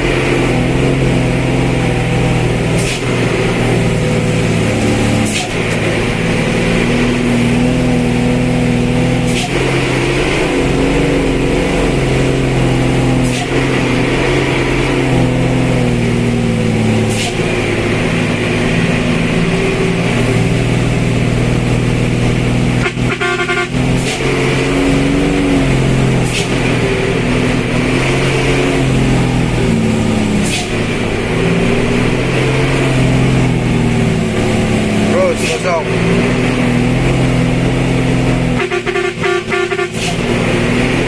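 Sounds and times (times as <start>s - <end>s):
vehicle engine running: 0.0s - 41.0s
horn honk: 22.6s - 28.8s, 38.3s - 41.0s.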